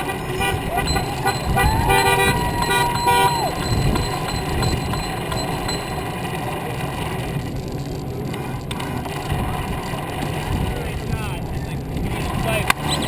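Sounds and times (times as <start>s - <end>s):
bicycle tyres rolling: 0.0s - 13.0s
wind: 0.0s - 13.0s.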